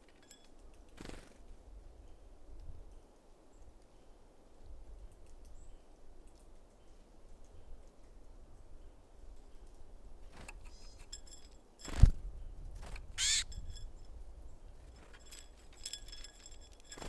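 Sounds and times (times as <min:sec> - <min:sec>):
faint high ticks and tinkles: 0:00.0 - 0:12.1, 0:12.8 - 0:17.0
high nasal bird call: 0:13.2 - 0:13.6.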